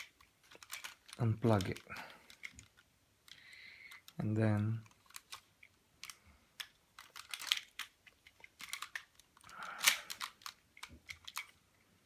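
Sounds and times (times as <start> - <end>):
plastic toy parts clicking: 0.0 - 11.6
plastic parts scraping: 0.0 - 11.8.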